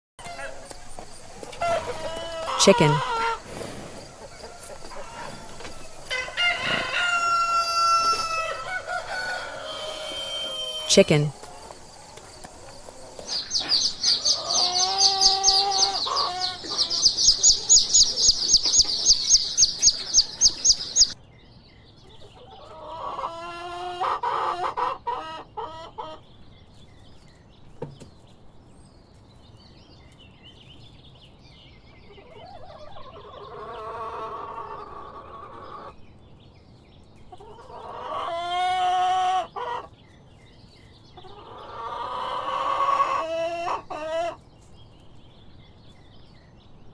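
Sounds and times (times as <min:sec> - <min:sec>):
rooster crowing: 0:00.2 - 0:13.2
chickens clucking: 0:00.2 - 0:21.2, 0:22.0 - 0:28.2, 0:32.0 - 0:36.0, 0:37.0 - 0:46.0
chicks peeping: 0:00.2 - 0:21.2, 0:21.9 - 0:28.3, 0:30.1 - 0:46.8.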